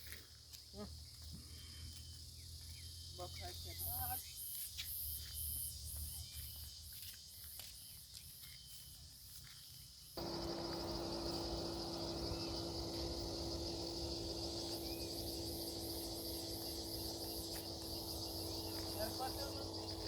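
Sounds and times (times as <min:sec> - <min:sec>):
crickets trilling: 0:00.0 - 0:20.0
low hum with rushing noise: 0:10.2 - 0:20.0
pulsing high chirp: 0:10.2 - 0:20.0.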